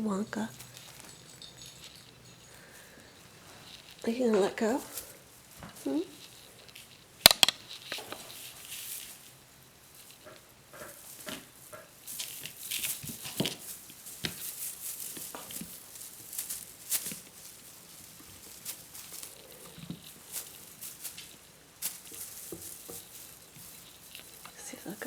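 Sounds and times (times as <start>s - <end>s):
kittens scrabbling and rustling: 0.0s - 25.0s
light knocks of paws and toys: 10.2s - 24.6s.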